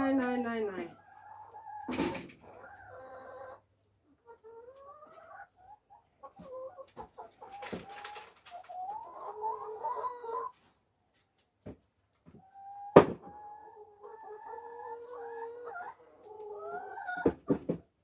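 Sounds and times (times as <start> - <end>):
hens clucking and calling: 0.0 - 10.7, 12.4 - 17.6.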